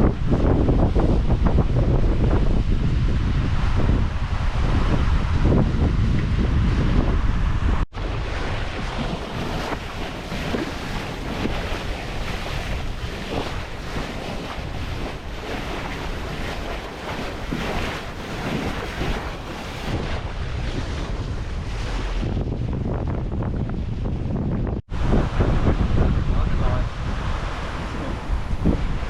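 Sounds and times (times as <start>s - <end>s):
low steady rumble: 0.0s - 8.9s
water rushing along hull: 0.0s - 29.0s
wind buffeting microphone: 0.0s - 29.0s.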